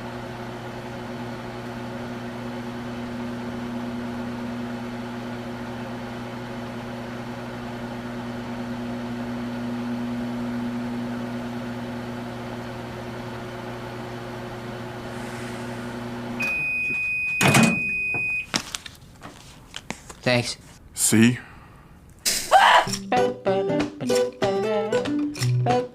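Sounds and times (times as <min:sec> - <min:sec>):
microwave oven humming: 0:00.0 - 0:18.6
microwave long high beep: 0:16.4 - 0:18.5.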